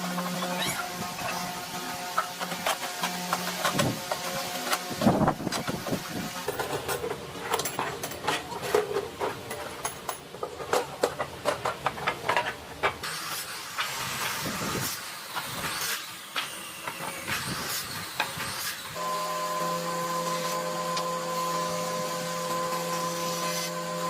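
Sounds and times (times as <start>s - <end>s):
sharp knocks and clatter: 5.0s - 13.0s
power tool motor humming: 13.0s - 24.0s.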